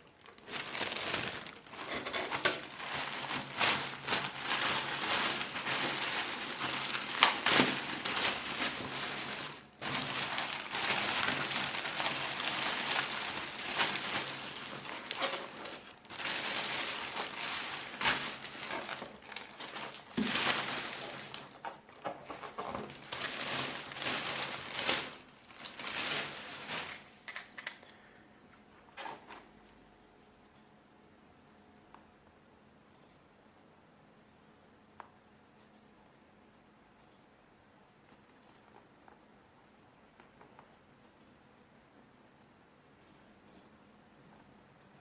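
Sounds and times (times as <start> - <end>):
packaging crinkling and rustling: 0.0 - 27.9, 28.9 - 29.5.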